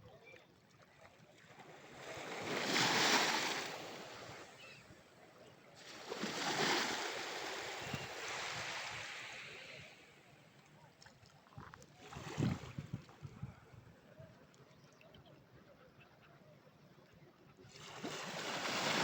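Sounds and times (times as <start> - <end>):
ocean waves washing ashore: 1.7 - 4.7, 5.8 - 10.2, 17.8 - 19.0.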